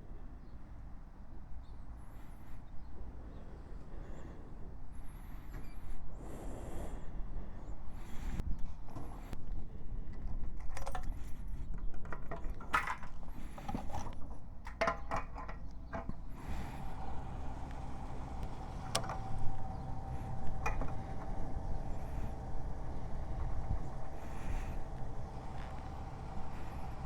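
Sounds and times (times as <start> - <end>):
clicks and rattles: 10.1 - 16.9, 17.5 - 27.0
motorcycle engine rumble: 11.3 - 27.0.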